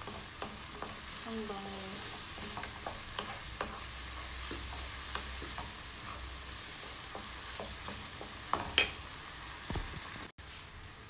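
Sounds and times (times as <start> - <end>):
spoon knocking on pan: 0.0 - 1.2, 2.0 - 5.9, 6.8 - 9.1
wooden spoon scraping a pan: 0.0 - 9.1
vegetables sizzling in a wok: 0.0 - 11.0.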